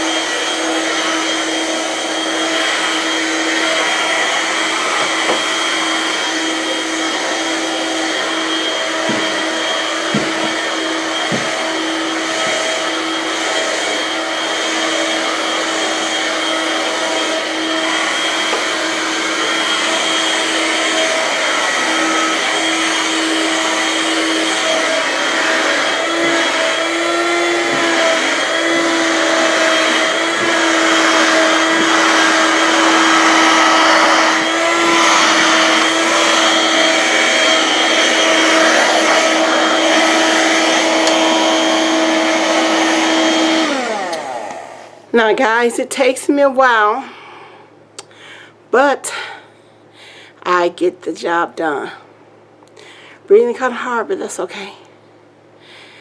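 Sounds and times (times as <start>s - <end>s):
vacuum cleaner running: 0.0s - 47.6s.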